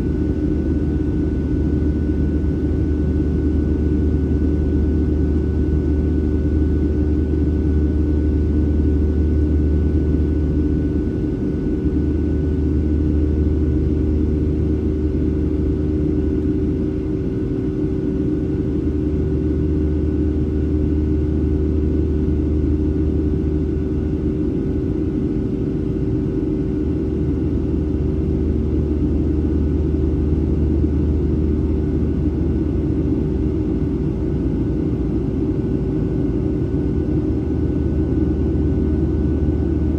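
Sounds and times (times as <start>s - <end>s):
jet engine rumble: 0.0s - 39.9s
steady cabin hum: 26.9s - 39.9s.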